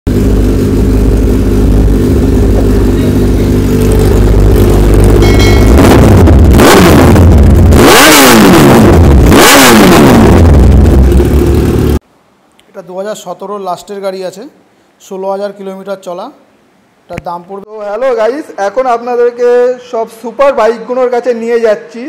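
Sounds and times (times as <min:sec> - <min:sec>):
motorcycle engine idling and revving: 0:00.1 - 0:12.0.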